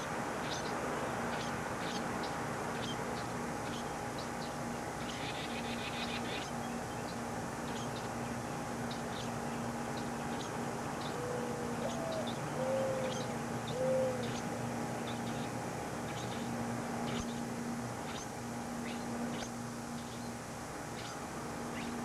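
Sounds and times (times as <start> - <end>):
small birds chirping: 0.0 - 22.0
steady hum: 0.0 - 22.0
dove cooing: 11.0 - 14.5.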